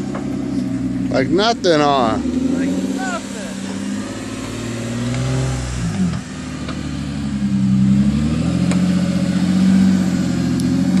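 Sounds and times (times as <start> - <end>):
engine revving under load: 0.0 - 11.0.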